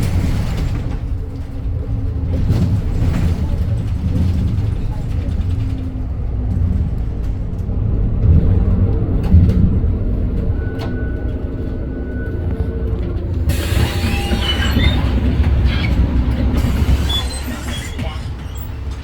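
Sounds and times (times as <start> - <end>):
bus engine rumble: 0.0 - 19.0
hiss with squeaks: 13.5 - 16.0, 16.6 - 18.8.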